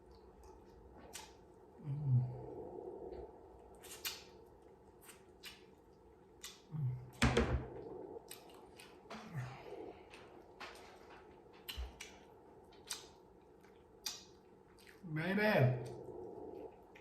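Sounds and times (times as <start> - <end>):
chewing and mouth clicks: 0.0 - 7.2, 7.8 - 15.1, 15.8 - 17.0
person humming mm: 1.8 - 2.5, 6.7 - 7.2.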